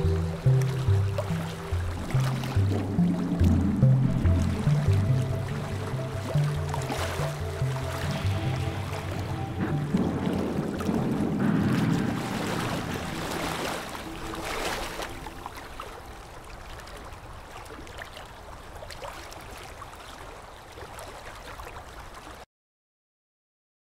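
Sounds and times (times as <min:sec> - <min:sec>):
background music: 0:00.0 - 0:16.3
choppy river water: 0:00.0 - 0:22.5
wind: 0:00.0 - 0:22.5.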